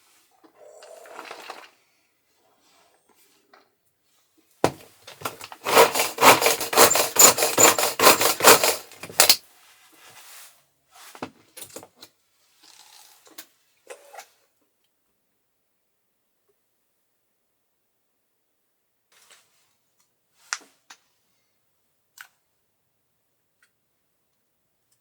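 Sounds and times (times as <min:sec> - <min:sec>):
rapid rubbing strokes: 0:05.6 - 0:09.0.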